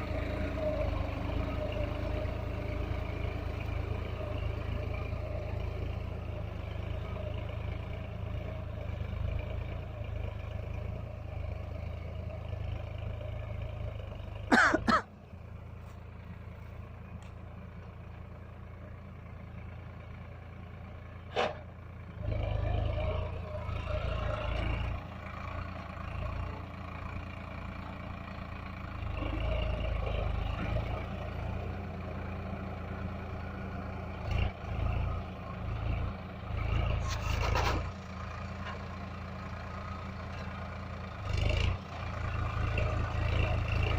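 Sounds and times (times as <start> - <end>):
tractor diesel engine rumbling: 0.0 - 43.9.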